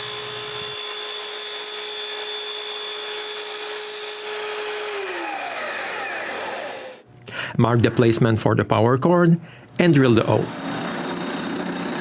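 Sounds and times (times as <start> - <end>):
power saw cutting wood: 0.0 - 7.0, 10.2 - 12.0
saw motor winding down: 4.2 - 7.0, 10.3 - 12.0.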